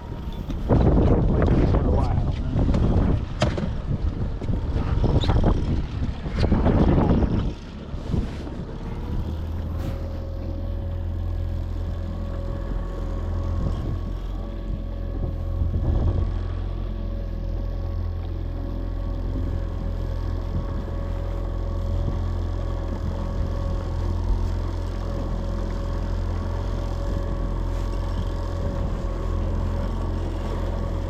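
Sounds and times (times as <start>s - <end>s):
wind buffeting microphone: 0.0s - 18.1s
boat motor running: 0.0s - 31.0s.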